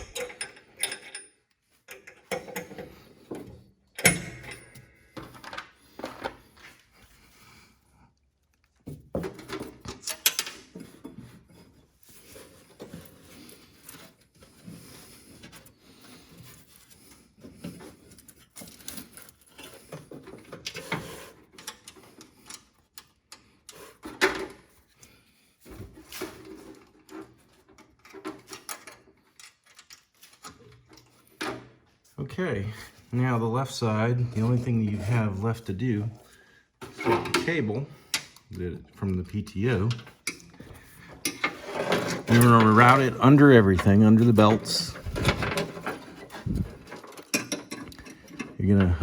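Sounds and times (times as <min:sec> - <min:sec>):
metal clicks and knocks: 0:00.0 - 0:01.3
handling noise: 0:40.6 - 0:49.0.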